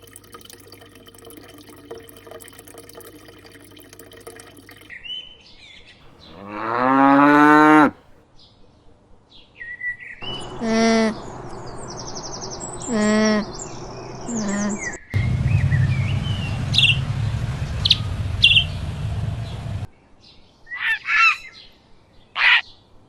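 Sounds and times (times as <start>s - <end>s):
running water: 0.0s - 4.9s
birds chirping: 6.0s - 6.8s, 10.1s - 19.9s
cow mooing: 6.2s - 8.0s
low steady hum: 10.2s - 19.9s.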